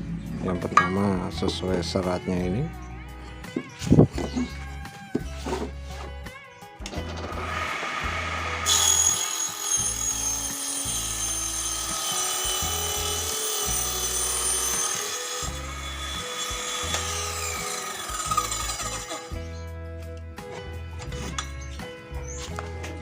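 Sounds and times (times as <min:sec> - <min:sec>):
table saw blade cutting wood: 0:06.9 - 0:19.6.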